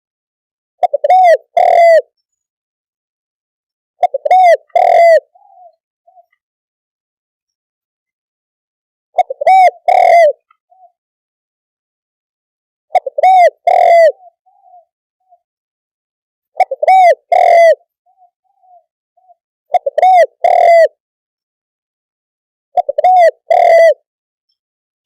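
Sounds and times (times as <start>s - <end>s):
dove cooing: 0.8s - 2.1s, 4.0s - 6.4s, 9.2s - 11.0s, 12.9s - 15.4s, 16.6s - 21.0s, 22.8s - 24.0s.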